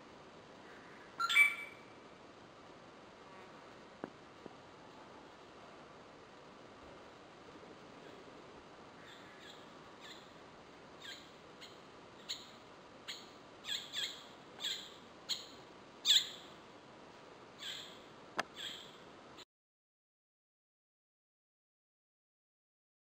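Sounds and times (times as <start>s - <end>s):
faint steady hiss: 0.0s - 19.4s
bird calling: 0.7s - 2.0s, 9.0s - 10.3s, 11.0s - 12.5s, 13.1s - 16.4s, 17.6s - 19.0s.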